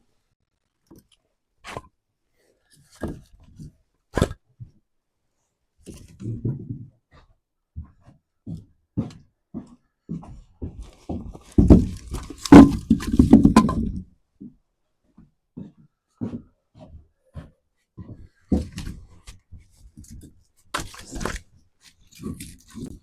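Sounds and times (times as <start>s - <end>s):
dull thumps and knocks: 5.9s - 14.6s, 15.2s - 21.4s
bumping and clattering: 10.7s - 14.1s.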